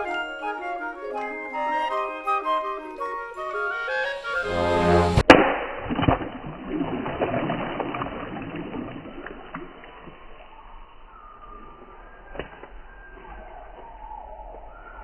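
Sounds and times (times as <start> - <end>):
flute music: 0.0 - 5.2
water splashing and sloshing: 4.8 - 14.6.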